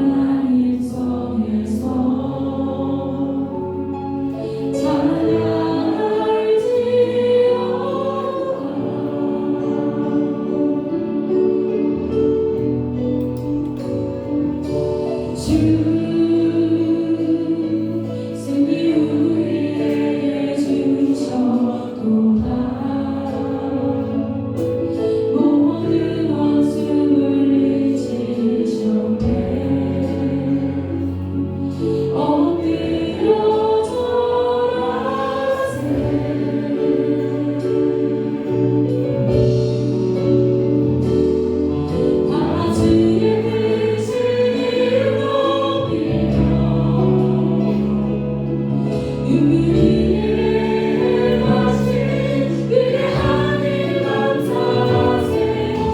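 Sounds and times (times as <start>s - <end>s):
voices singing together: 0.0s - 11.7s, 15.2s - 41.1s, 41.8s - 55.9s
instrumental accompaniment: 1.1s - 55.9s.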